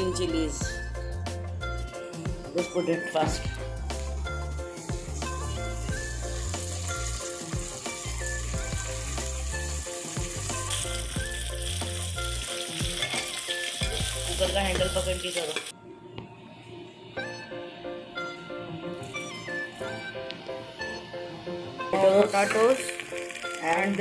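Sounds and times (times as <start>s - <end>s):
background music: 0.0s - 24.0s
onions sizzling in hot oil: 3.8s - 15.7s, 19.1s - 24.0s
spatula stirring: 6.7s - 14.5s.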